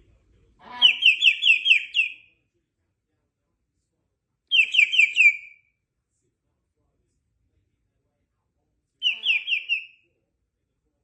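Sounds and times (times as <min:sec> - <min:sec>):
parrot whistling: 0:00.8 - 0:02.2, 0:04.5 - 0:05.6, 0:09.0 - 0:10.0.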